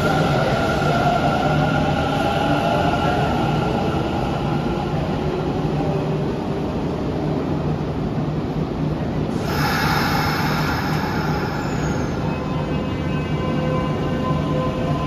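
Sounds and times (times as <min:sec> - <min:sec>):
hiss: 0:09.3 - 0:12.3
electric train running noise: 0:09.3 - 0:15.0.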